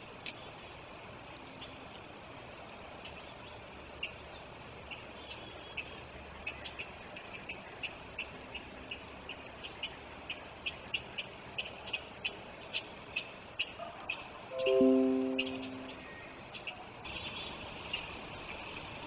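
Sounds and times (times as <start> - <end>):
high-pitched bird chirps: 14.5 - 16.2.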